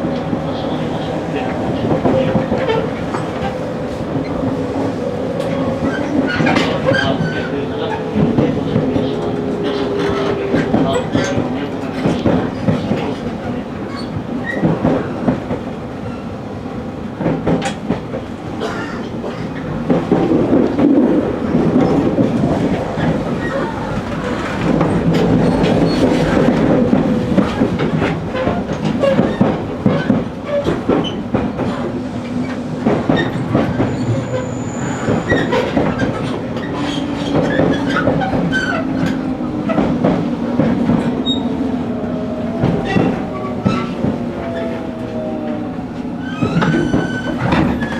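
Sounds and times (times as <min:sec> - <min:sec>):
train rumble: 0:00.0 - 0:47.9
wheels clicking over rail joints: 0:05.4 - 0:15.6, 0:32.8 - 0:47.9
high squeal: 0:33.9 - 0:35.7.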